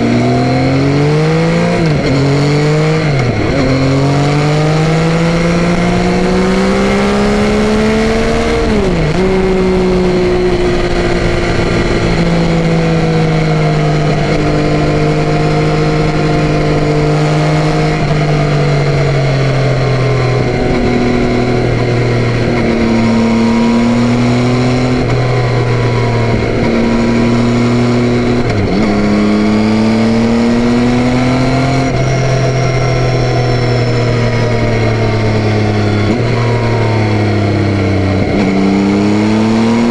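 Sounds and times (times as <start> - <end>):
motorcycle engine revving: 0.0 - 39.9
road and wind noise: 0.0 - 39.9.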